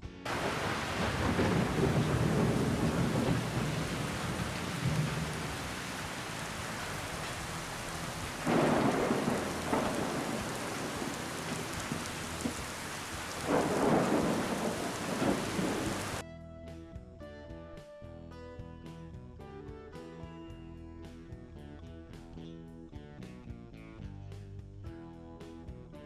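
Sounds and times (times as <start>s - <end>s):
heavy rain: 0.3s - 16.2s.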